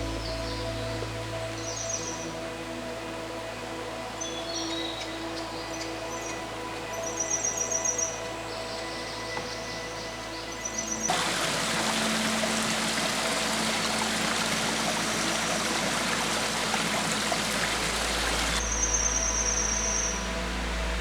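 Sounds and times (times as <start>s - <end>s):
stream water rushing: 10.2s - 21.0s.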